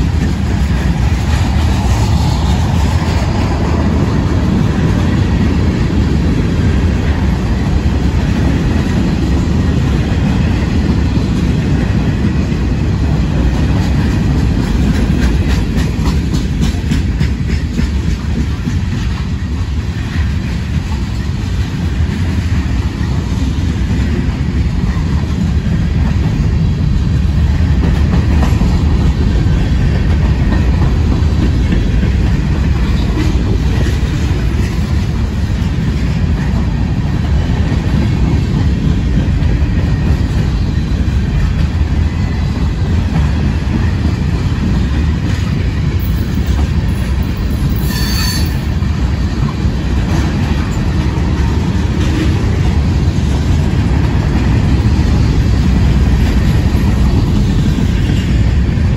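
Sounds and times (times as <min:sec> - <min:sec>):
freight train wheels rumbling on rail: 0:00.0 - 0:58.9
high-pitched wheel squeal: 0:47.8 - 0:48.6.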